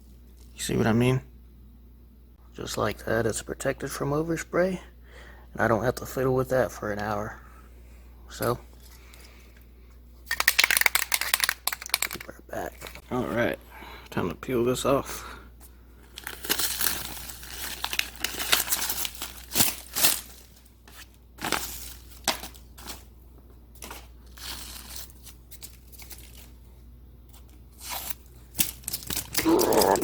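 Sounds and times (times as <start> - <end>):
tape and paper tearing: 27.7 - 30.0.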